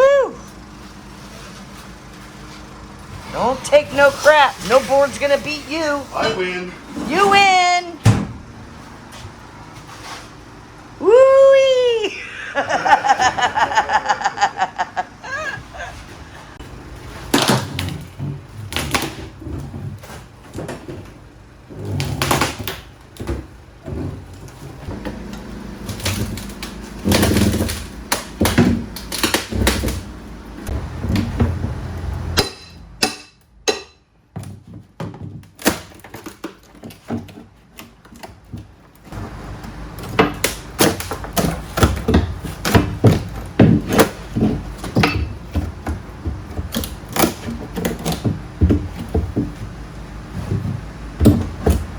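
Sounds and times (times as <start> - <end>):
floorboards being pried up: 15.3 - 32.9, 34.2 - 51.9.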